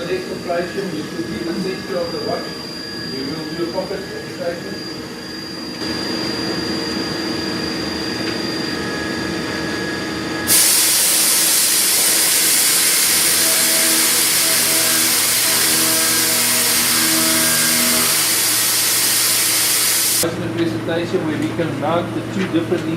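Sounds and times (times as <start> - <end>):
pulsing tone: 0.0 - 20.2
milling machine running: 0.0 - 20.3
loud hiss: 10.5 - 20.2.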